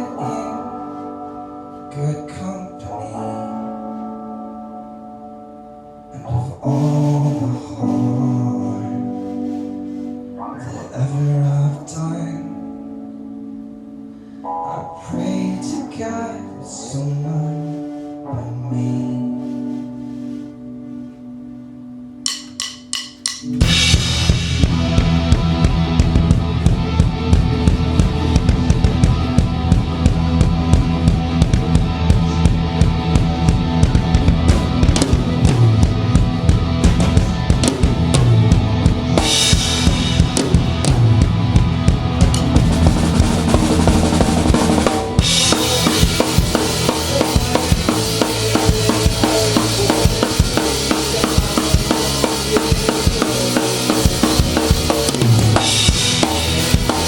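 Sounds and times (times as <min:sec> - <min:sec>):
rock band playing: 0:00.0 - 0:18.2, 0:19.2 - 0:57.0
cymbals washing: 0:22.3 - 0:25.6, 0:36.7 - 0:57.0
kick and snare drums: 0:22.4 - 0:57.0.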